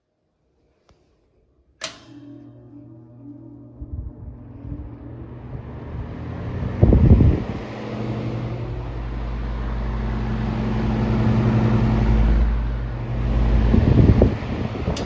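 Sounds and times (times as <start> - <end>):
electric fan motor humming: 1.8 - 15.0
air rushing from fan: 3.0 - 15.0.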